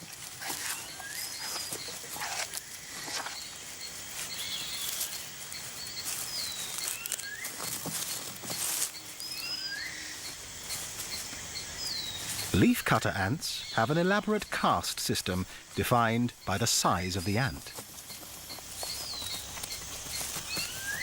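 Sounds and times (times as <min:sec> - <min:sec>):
dry crackling rustles: 0:00.0 - 0:21.0
steady background hiss: 0:00.0 - 0:21.0
bird whistled chirps: 0:06.3 - 0:07.6, 0:09.2 - 0:10.4, 0:20.4 - 0:21.0.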